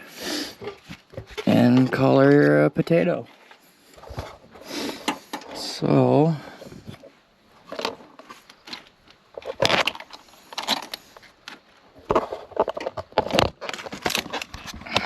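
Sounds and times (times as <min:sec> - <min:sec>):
plastic hose clicks and scrapes: 0:07.7 - 0:15.0.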